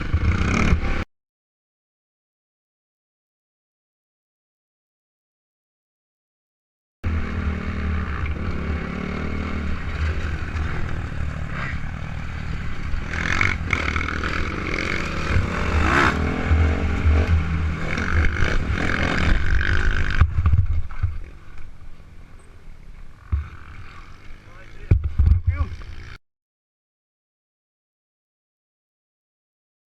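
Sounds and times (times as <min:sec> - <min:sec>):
dirt bike engine revving: 0:00.0 - 0:01.1, 0:07.0 - 0:21.5, 0:23.1 - 0:26.2.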